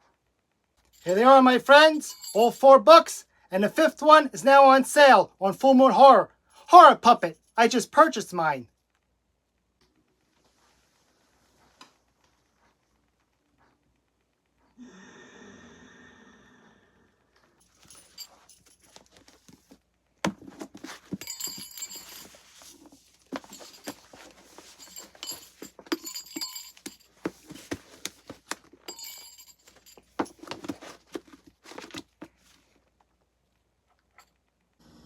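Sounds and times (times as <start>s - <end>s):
rustling and crinkling: 10.0s - 14.6s, 17.6s - 34.2s
books clicking and knocking: 18.9s - 32.7s.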